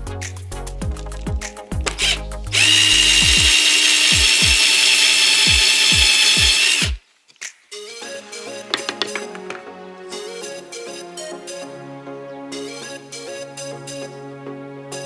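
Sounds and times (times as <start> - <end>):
power drill whining: 1.9 - 7.0.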